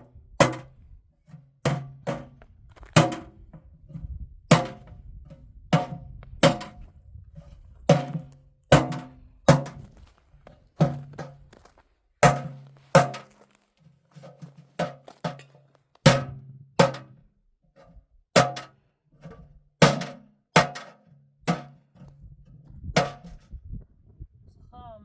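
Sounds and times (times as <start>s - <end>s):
heavy thuds with low ringing: 1.6s - 13.4s, 16.1s - 17.2s, 19.8s - 23.8s.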